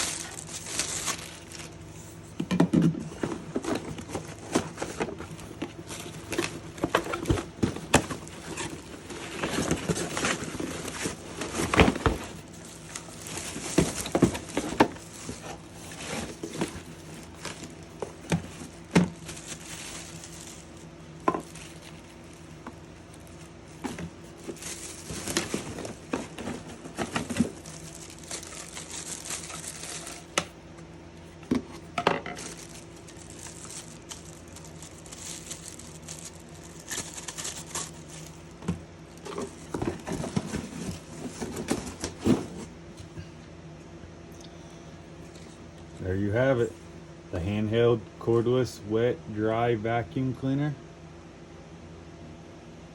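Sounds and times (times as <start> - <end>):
faint steady hum: 0.0 - 52.9.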